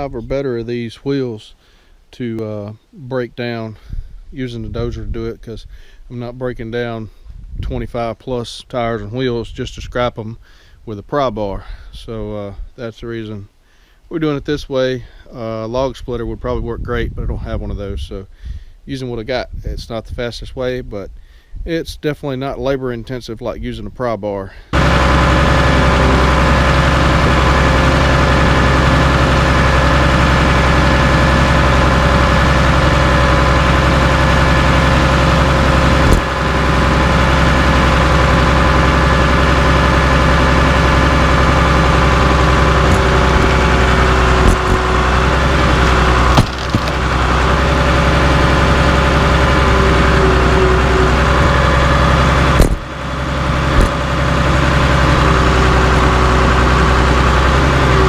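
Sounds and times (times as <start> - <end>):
bulldozer diesel engine running: 24.7 - 58.0.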